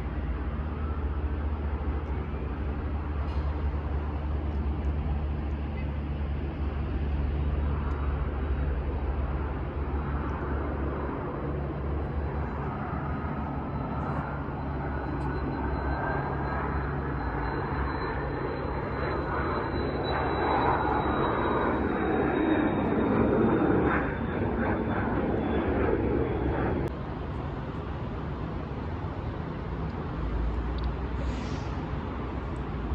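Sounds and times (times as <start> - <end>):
jet engines whining: 0.6 - 26.9
jet airliner rushing past: 5.1 - 26.9.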